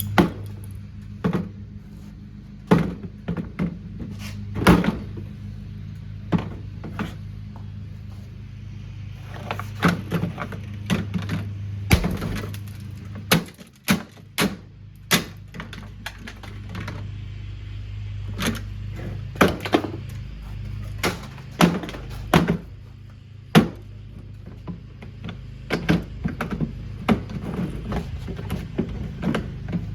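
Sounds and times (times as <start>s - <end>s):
steady low hum: 0.0s - 29.9s
plastic being struck and cracking: 11.9s - 15.3s.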